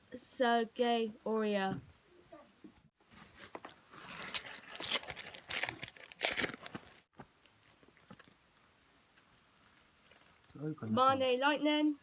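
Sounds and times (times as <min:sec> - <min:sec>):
foil pack crinkling and tearing: 0:03.4 - 0:08.3.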